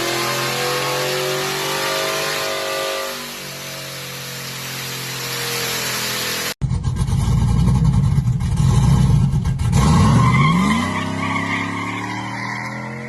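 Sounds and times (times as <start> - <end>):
truck engine accelerating: 0.0 - 13.0
deep engine sound: 3.2 - 10.1.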